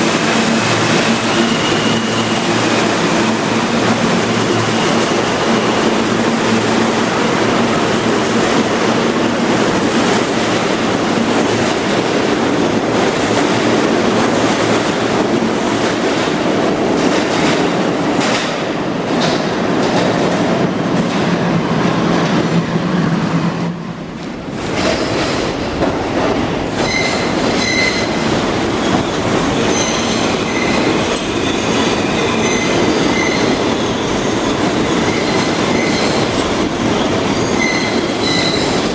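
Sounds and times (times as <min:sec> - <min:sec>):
train wheels on rails: 0:00.0 - 0:38.9
high-pitched wheel squeal: 0:31.4 - 0:34.1, 0:37.4 - 0:38.8.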